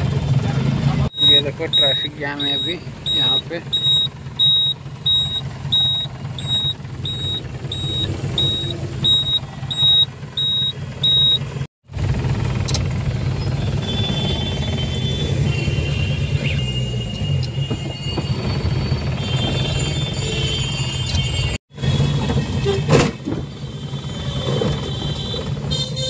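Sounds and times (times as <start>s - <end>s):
car engine rumbling: 0.0s - 25.7s
high electronic beeps: 1.1s - 11.4s.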